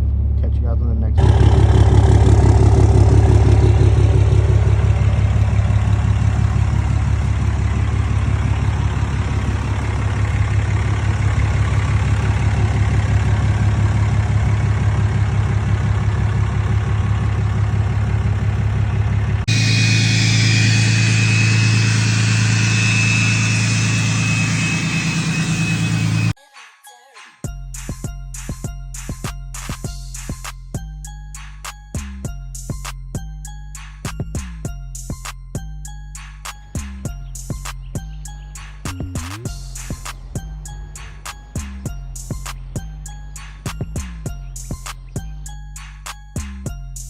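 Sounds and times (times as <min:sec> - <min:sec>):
diesel truck engine running: 0:00.0 - 0:26.4, 0:32.3 - 0:47.0
high whine: 0:01.2 - 0:18.3, 0:18.9 - 0:26.4.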